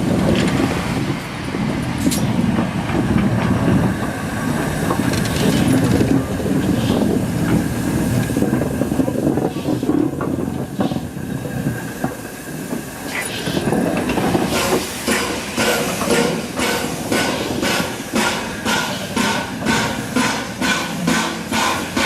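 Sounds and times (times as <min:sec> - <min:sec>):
steam hissing: 0:03.7 - 0:22.0
steam locomotive chuffing beats: 0:06.3 - 0:22.0.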